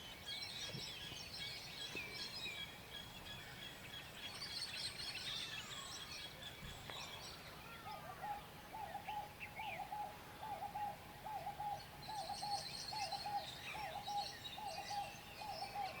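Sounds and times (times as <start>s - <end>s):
small birds chirping: 0.0s - 16.0s
bird hooting call: 7.9s - 16.0s.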